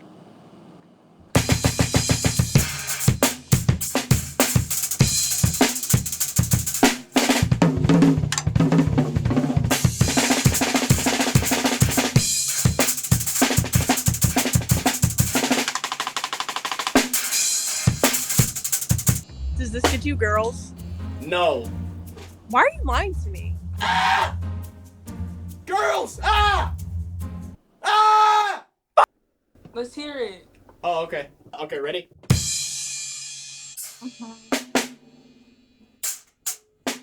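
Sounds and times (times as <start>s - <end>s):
drum kit played fast: 1.4s - 27.0s, 32.3s - 35.1s, 36.0s - 37.0s.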